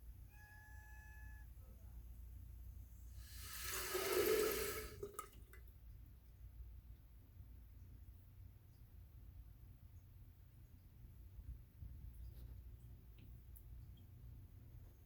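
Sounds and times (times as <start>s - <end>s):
faint whistling tone: 0.3s - 1.7s
toilet flushing water gurgling: 3.2s - 5.6s.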